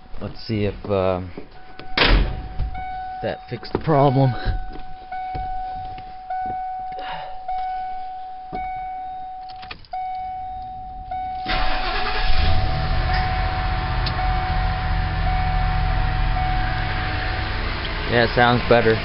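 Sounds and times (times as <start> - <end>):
van warning chime: 0.0 - 19.0
engine cranking and idling: 10.7 - 19.0.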